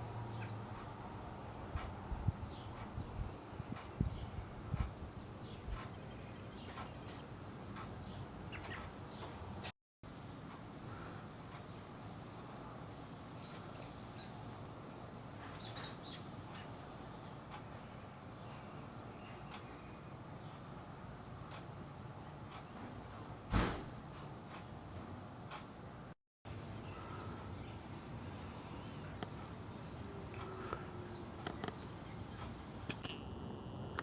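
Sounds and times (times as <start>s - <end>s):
robins chirping: 1.8s - 9.6s, 15.5s - 20.7s, 26.6s - 32.7s.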